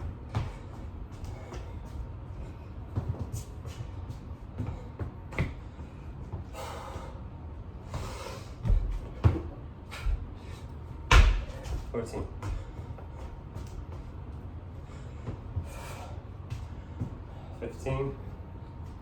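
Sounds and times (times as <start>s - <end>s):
person breathing hard: 4.5s - 9.3s, 14.8s - 17.6s.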